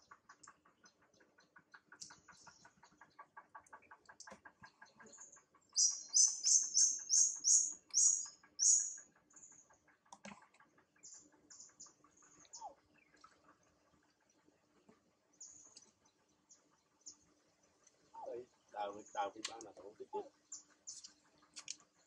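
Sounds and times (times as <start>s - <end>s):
faint steady ticking: 0.0s - 22.0s
bird singing high chirps: 5.1s - 9.0s.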